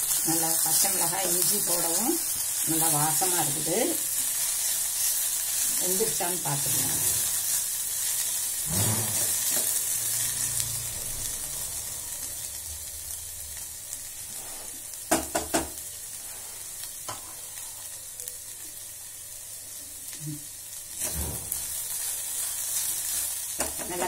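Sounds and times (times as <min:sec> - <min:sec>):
vegetables sizzling in a pan: 0:00.0 - 0:24.0
spatula knocking on a pan: 0:15.1 - 0:15.8.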